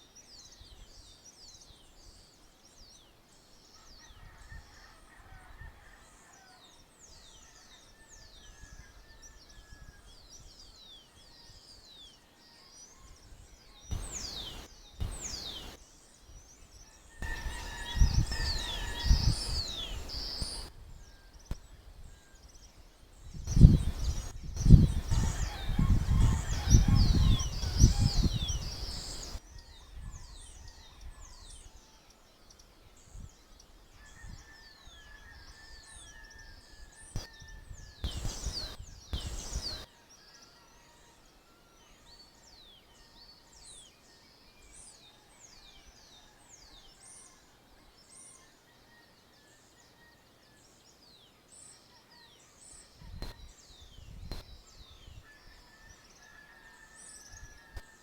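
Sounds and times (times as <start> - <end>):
small birds chirping: 13.7 - 20.7, 23.4 - 29.6, 37.1 - 39.9.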